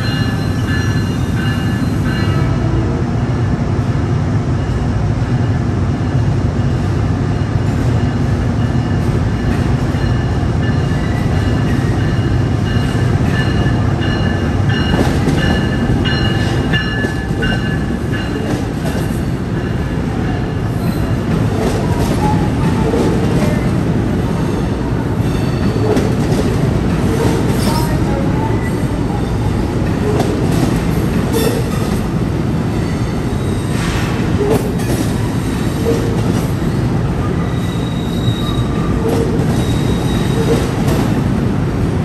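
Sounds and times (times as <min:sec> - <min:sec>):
train rumbling: 0:00.0 - 0:42.0.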